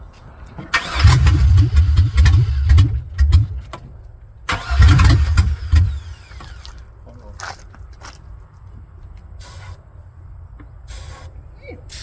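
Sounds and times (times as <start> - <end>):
engine starter cranking: 0.7 - 3.8, 4.5 - 6.8.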